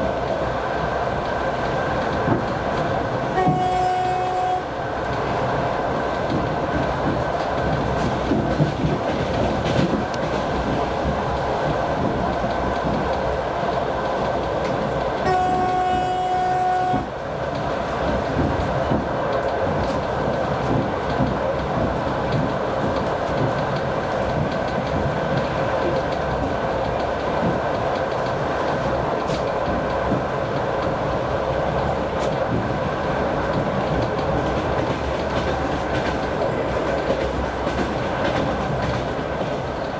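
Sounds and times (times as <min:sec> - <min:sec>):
locomotive horn blast: 0:03.4 - 0:04.7, 0:15.2 - 0:17.1.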